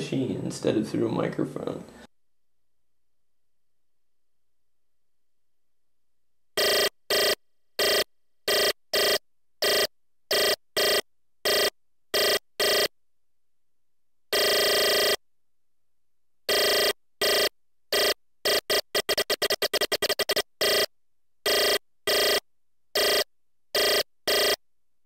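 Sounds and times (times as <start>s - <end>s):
buzzy ringing tone bursts: 6.6s - 12.9s, 16.5s - 20.9s, 21.5s - 22.4s, 23.0s - 23.2s, 23.8s - 24.6s.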